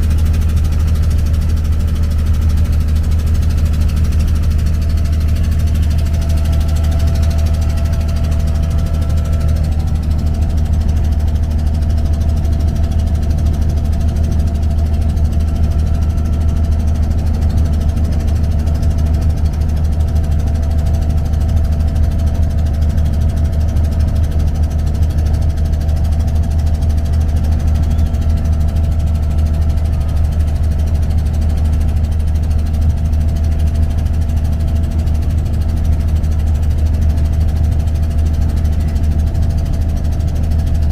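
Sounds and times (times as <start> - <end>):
boat diesel engine droning: 0.0 - 40.9.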